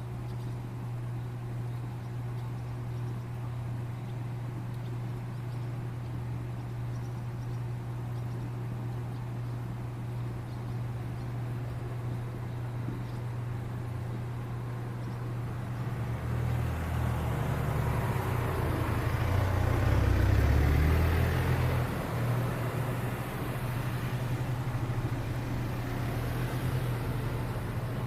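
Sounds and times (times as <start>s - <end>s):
steady low hum: 0.0s - 28.0s
motor vehicle passing: 14.4s - 28.0s.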